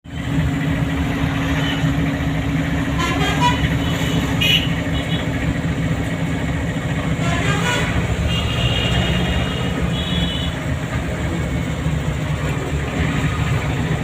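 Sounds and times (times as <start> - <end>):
car engine and road hum: 0.0 - 14.0
car horn toots: 7.2 - 10.6.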